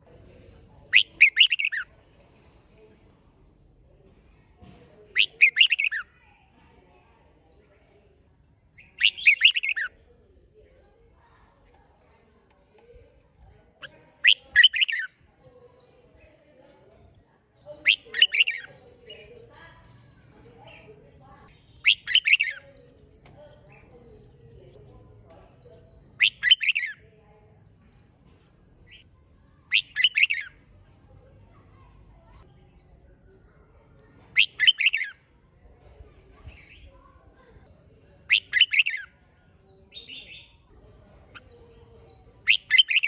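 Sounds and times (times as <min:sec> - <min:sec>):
faint high bird chirps: 0:00.4 - 0:01.9, 0:04.7 - 0:07.8, 0:08.7 - 0:13.0, 0:13.6 - 0:28.2, 0:28.8 - 0:30.7, 0:31.4 - 0:40.7, 0:41.3 - 0:43.0
bird warbling: 0:00.9 - 0:01.8, 0:05.2 - 0:06.0, 0:09.0 - 0:09.9, 0:21.8 - 0:22.6.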